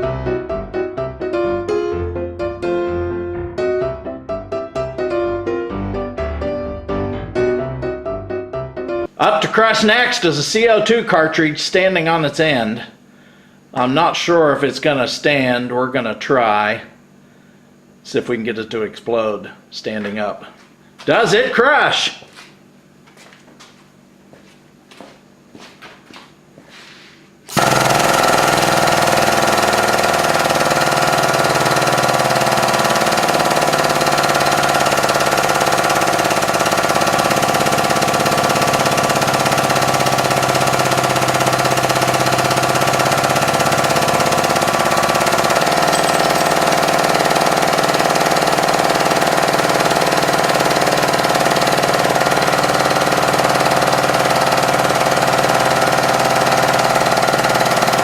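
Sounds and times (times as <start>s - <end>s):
hydraulic pump motor running: 27.5s - 58.0s.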